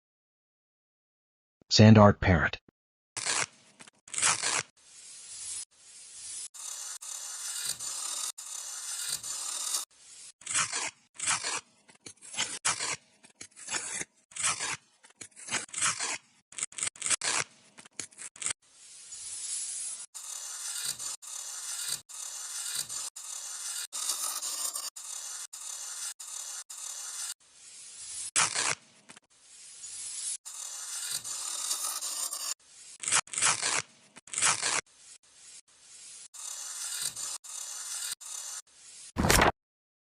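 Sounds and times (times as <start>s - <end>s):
sand scraping across a surface: 4.1s - 14.0s, 18.4s - 39.3s.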